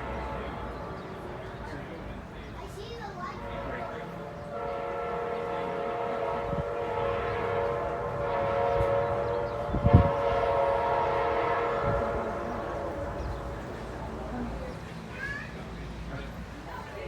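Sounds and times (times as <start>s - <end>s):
locomotive air horn blast: 0.0s - 1.0s, 3.4s - 13.9s.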